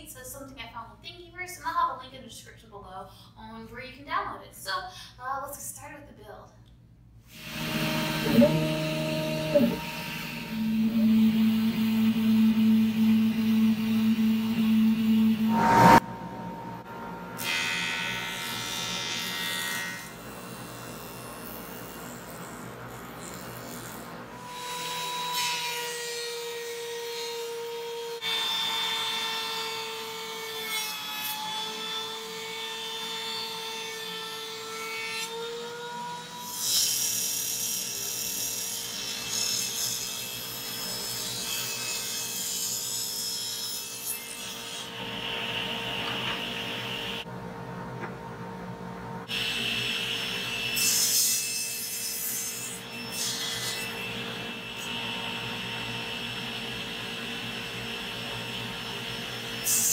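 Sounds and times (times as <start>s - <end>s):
saw cutting wood: 7.3s - 16.1s
steady whine: 7.3s - 17.5s.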